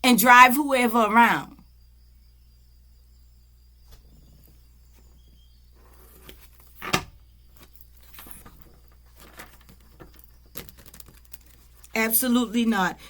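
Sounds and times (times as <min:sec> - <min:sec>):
soft handling rustles: 0:07.5 - 0:12.0.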